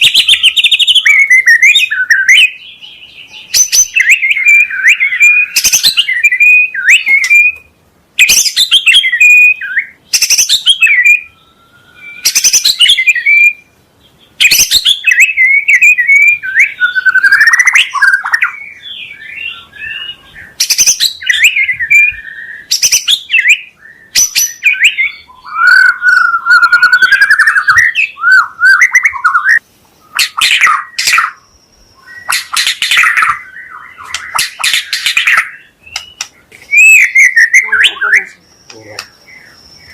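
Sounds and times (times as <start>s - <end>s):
bird singing whistled phrases: 0.0s - 13.7s, 14.4s - 39.9s
harsh rasping bird rattle calls: 32.2s - 38.1s.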